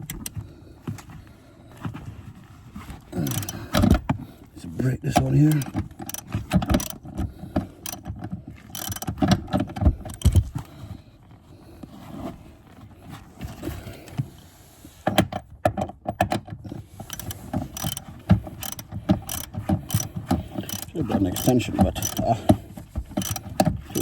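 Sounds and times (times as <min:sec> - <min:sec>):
ratchet clicking against metal: 0:03.2 - 0:04.0, 0:05.5 - 0:07.1, 0:07.8 - 0:08.1, 0:08.7 - 0:09.2, 0:10.1 - 0:10.4, 0:17.0 - 0:24.0.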